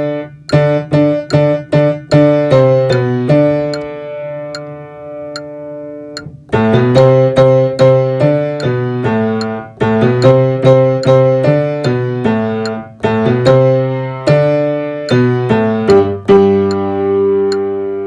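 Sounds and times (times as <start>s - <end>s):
piano playing slow chords: 0.0s - 18.0s.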